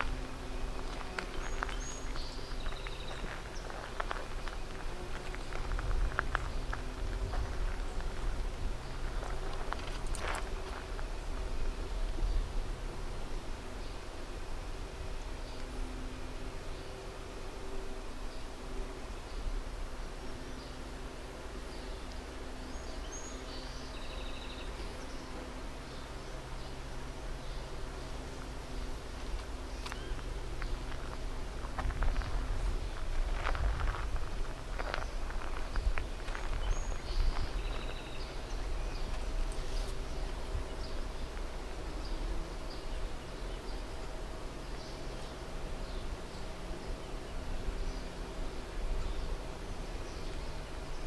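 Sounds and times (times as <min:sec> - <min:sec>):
small birds chirping: 0:00.0 - 0:11.4, 0:21.7 - 0:51.0
low outdoor rumble: 0:00.0 - 0:51.0
rustles or crunches: 0:29.2 - 0:38.1.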